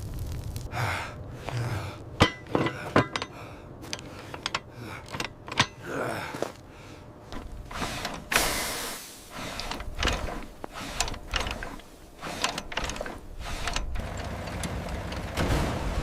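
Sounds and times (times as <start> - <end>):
mechanical clatter of handling: 2.2 - 5.9, 7.3 - 15.5.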